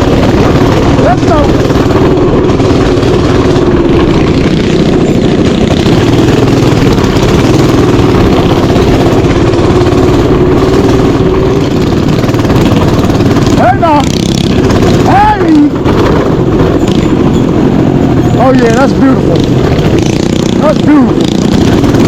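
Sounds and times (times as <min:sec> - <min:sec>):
mini bike engine running: 0:00.0 - 0:22.0.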